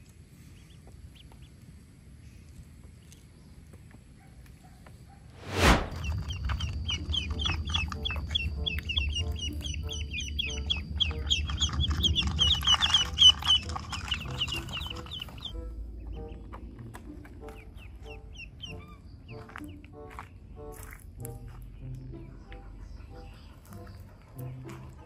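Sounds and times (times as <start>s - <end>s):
ducklings peeping: 0.0s - 1.7s, 5.9s - 25.0s
low rumble: 5.4s - 18.1s.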